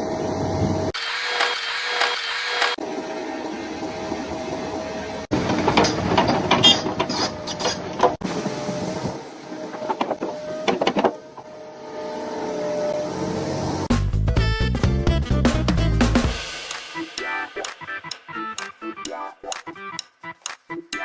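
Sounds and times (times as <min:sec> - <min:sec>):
backhoe mechanical whine: 0:04.2 - 0:13.9
knocks and scraping: 0:05.3 - 0:11.6.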